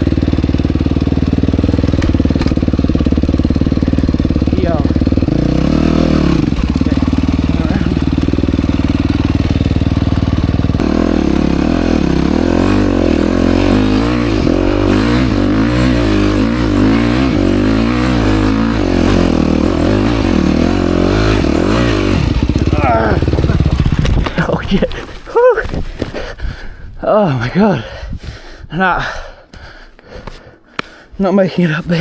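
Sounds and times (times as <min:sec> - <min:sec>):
dirt bike engine revving: 0:00.0 - 0:25.4.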